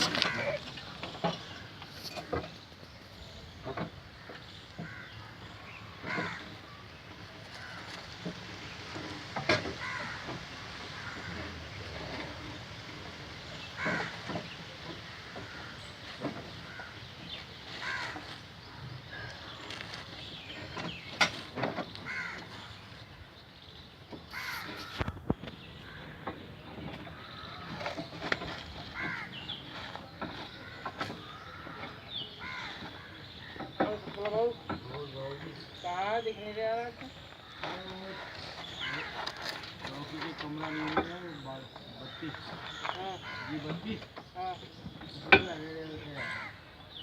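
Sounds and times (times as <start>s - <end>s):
crow cawing: 0.1s - 0.6s, 4.2s - 5.3s, 6.0s - 6.6s, 9.8s - 11.6s, 13.8s - 14.2s, 16.6s - 17.0s, 17.8s - 18.4s, 22.0s - 22.6s, 24.3s - 25.2s, 28.9s - 29.4s, 30.6s - 33.6s, 37.4s - 39.6s, 40.4s - 41.2s, 42.0s - 43.8s, 46.1s - 46.6s.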